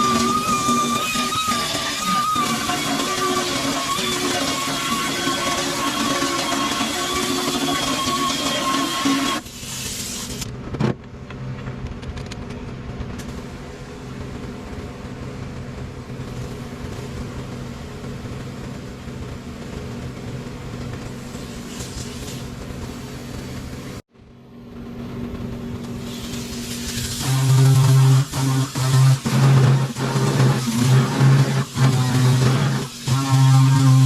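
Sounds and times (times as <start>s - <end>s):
low mechanical hum: 9.4s - 34.0s.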